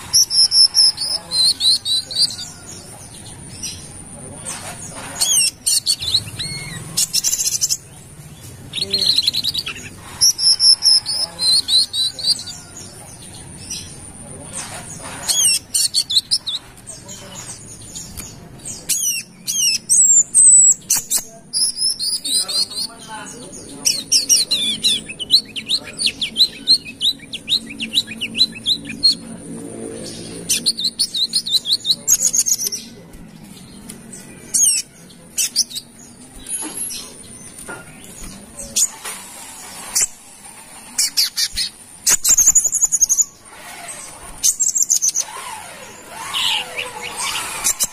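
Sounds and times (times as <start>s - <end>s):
bird singing high chirps: 0.0s - 3.8s
bird chirps and trills: 0.0s - 47.9s.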